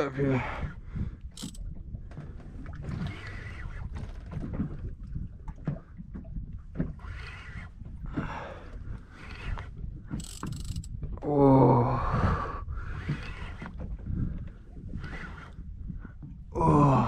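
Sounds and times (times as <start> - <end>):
low rumble of wind and boat: 0.0 - 17.0
man breathing hard: 11.8 - 13.2.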